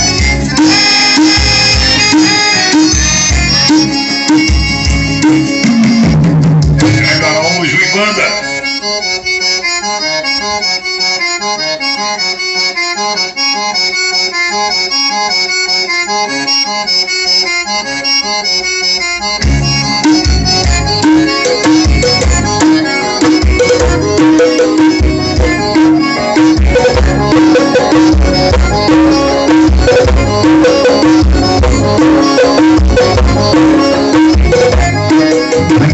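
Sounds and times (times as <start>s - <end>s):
heavy bass and drum hits: 0.0s - 7.3s, 19.4s - 35.9s
accordion-led music over speaker: 0.0s - 35.9s.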